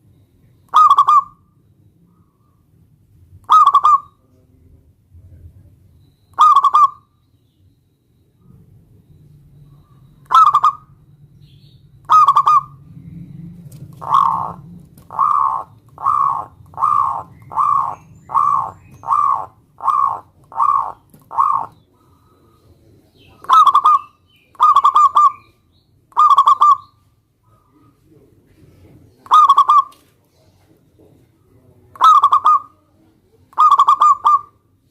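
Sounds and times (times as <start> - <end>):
dove cooing: 0.7 - 1.4, 3.4 - 4.4, 6.4 - 7.0, 9.6 - 11.0, 12.0 - 26.9, 27.5 - 30.6, 31.6 - 34.7.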